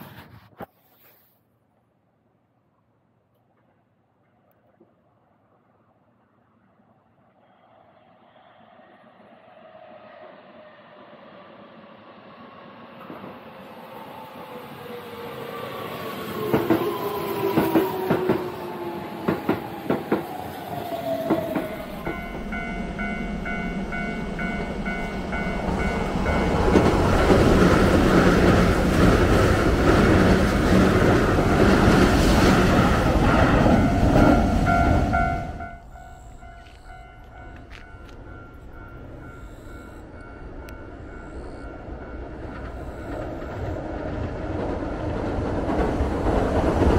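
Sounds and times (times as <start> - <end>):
electric train whine passing: 5.3 - 46.9
train rumbling through crossing: 7.2 - 46.9
wheels clacking over rail joints: 16.3 - 39.5
level-crossing warning bell: 20.7 - 29.9, 32.2 - 45.5.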